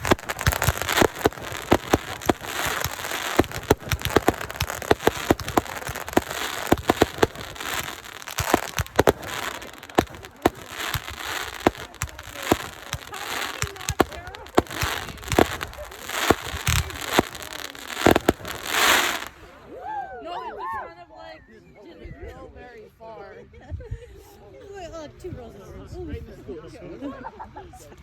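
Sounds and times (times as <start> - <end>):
fireworks bangs: 0.0 - 19.6
fireworks crackling: 0.0 - 19.6.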